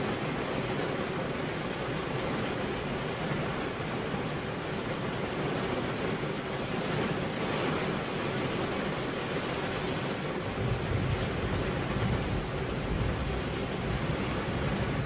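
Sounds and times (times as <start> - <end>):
rain on a car window: 0.0 - 15.0.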